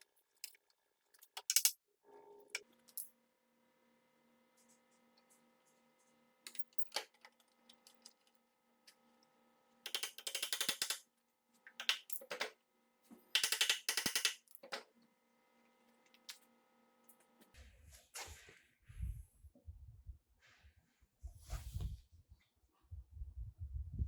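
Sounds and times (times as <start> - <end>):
ratchet clicking: 13.4 - 14.5.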